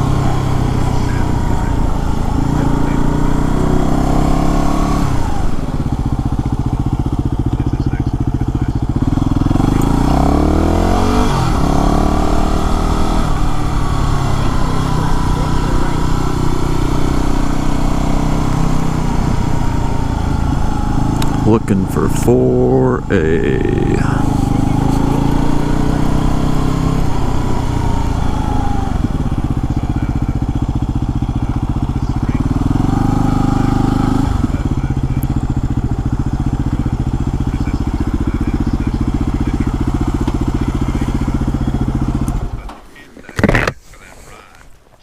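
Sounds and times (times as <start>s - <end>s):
motorcycle engine idling and revving: 0.0s - 45.0s.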